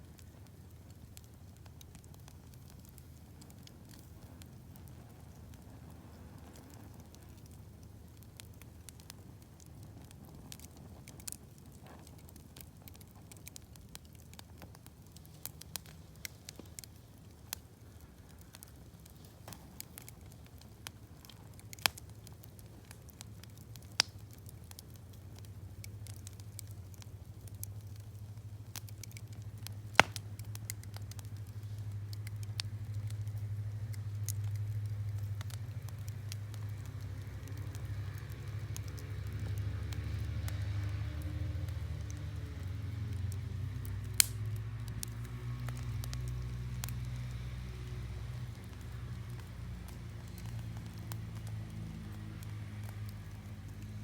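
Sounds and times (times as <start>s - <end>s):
campfire crackling: 0.0s - 54.0s
sharp pops: 29.9s - 31.2s.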